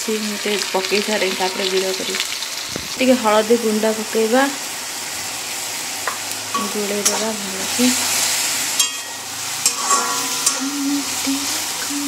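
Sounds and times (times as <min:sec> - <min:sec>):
onions sizzling in hot oil: 0:00.0 - 0:12.0
metal spatula clinking on pan: 0:08.8 - 0:10.6.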